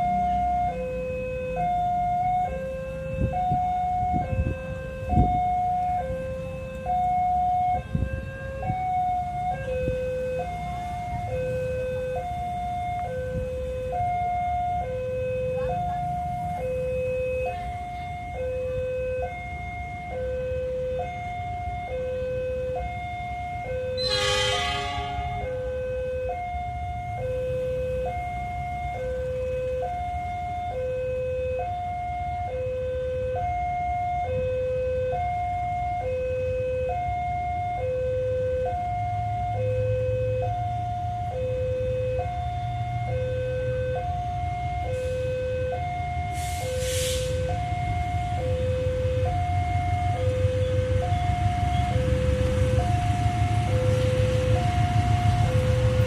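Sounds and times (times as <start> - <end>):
two-tone railway warning alarm: 0.0 - 56.0
short hiss: 46.4 - 47.4.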